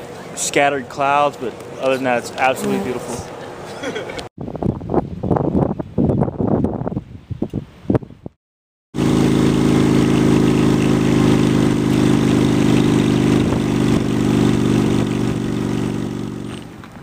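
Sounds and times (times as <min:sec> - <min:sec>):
motorcycle engine running: 0:09.0 - 0:16.9.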